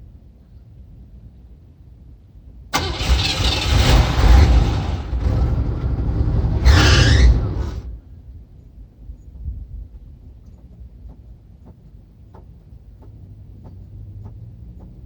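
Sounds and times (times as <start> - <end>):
car engine cranking on starter: 2.7 - 7.9.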